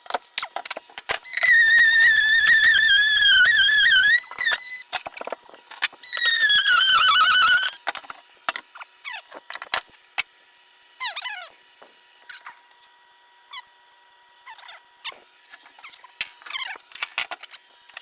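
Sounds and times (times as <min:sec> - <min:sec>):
power saw whining: 0:01.2 - 0:04.9, 0:06.1 - 0:07.9
short falling squeaks: 0:01.2 - 0:04.9, 0:06.0 - 0:07.8.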